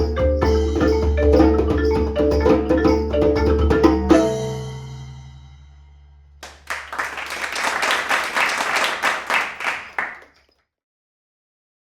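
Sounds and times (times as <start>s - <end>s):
audience clapping: 6.4s - 10.4s.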